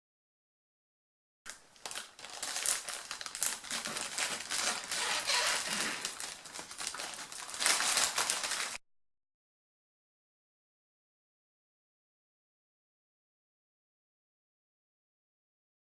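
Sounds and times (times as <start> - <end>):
packaging crinkling and rustling: 1.5 - 8.8.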